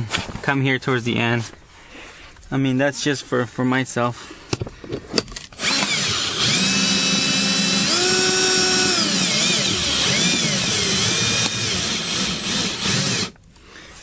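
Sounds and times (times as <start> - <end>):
cordless drill motor whine: 5.5 - 13.4.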